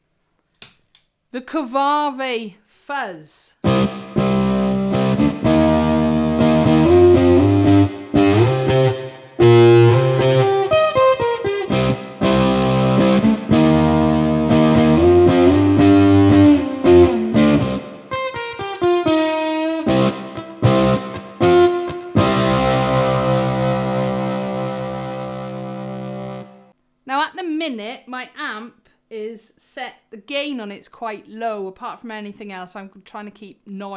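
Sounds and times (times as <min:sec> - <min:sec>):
distorted electric ukulele chords: 0:03.6 - 0:26.7.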